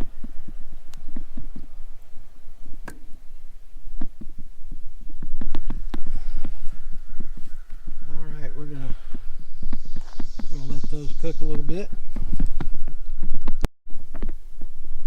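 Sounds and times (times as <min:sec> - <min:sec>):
campfire crackling: 0:00.0 - 0:15.0
low rumble: 0:00.0 - 0:15.0.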